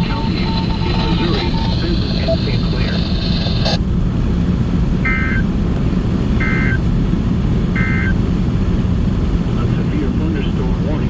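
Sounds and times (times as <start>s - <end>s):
car cabin road rumble: 0.0s - 11.0s
short electronic beeps: 0.2s - 3.8s, 5.1s - 5.4s, 6.4s - 6.8s, 7.8s - 8.2s.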